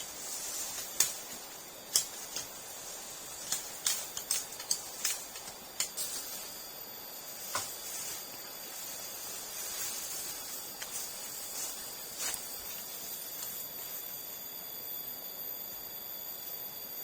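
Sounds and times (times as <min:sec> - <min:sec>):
continuous hiss: 0:00.0 - 0:17.0
insects buzzing: 0:00.0 - 0:17.0
sharp clicks: 0:01.0 - 0:02.5, 0:03.4 - 0:06.2.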